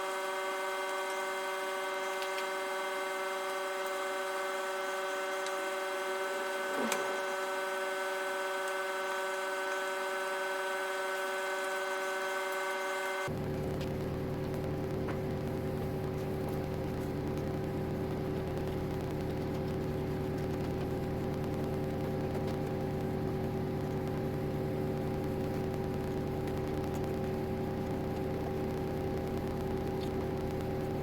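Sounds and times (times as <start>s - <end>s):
router motor humming and whining: 0.0s - 13.3s.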